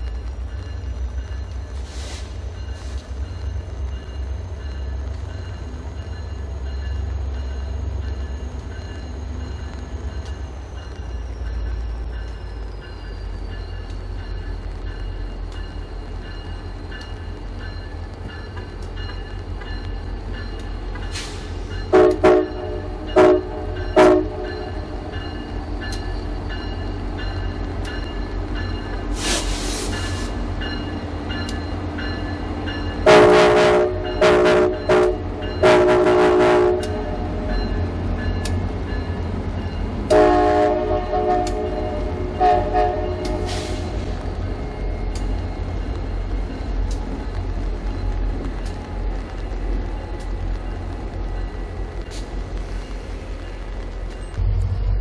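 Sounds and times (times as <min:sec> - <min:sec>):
diesel locomotive rumbling: 0:00.0 - 0:55.0
brief hiss: 0:01.8 - 0:03.1, 0:29.1 - 0:30.4
locomotive horn blasts: 0:21.9 - 0:24.8, 0:33.0 - 0:37.5, 0:40.1 - 0:43.8.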